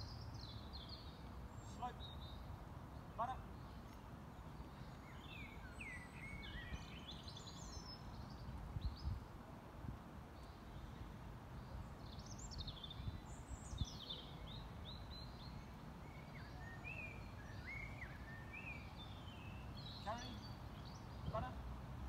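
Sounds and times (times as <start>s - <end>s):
songbird singing: 0.0s - 9.5s, 10.1s - 22.0s.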